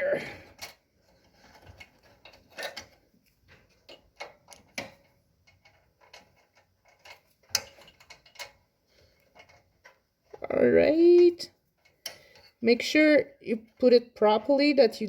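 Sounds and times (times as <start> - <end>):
small metal clicks and taps: 0.5 - 10.5, 11.2 - 12.6.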